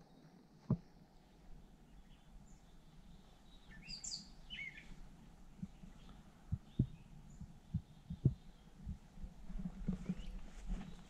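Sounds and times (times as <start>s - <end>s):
songbirds chirping: 0.0s - 11.0s
soft low thumps: 4.9s - 11.0s.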